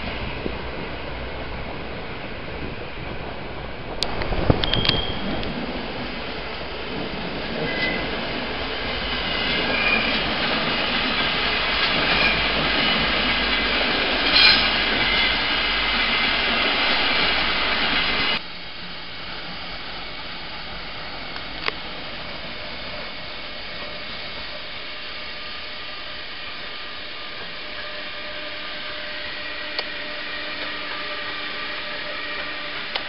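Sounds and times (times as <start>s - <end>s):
train rolling into station: 0.0s - 33.0s
wheel and brake squeals: 4.5s - 5.5s, 7.6s - 8.2s, 9.1s - 10.6s, 11.2s - 13.2s, 14.2s - 15.6s.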